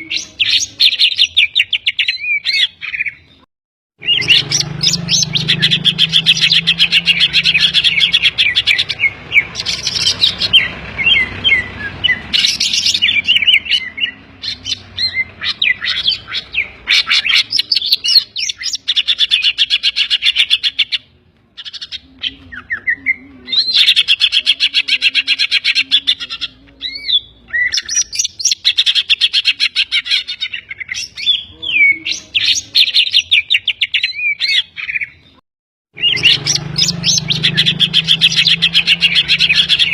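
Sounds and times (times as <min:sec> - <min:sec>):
bird singing chattering phrases: 0:00.0 - 0:35.4, 0:36.0 - 0:39.9.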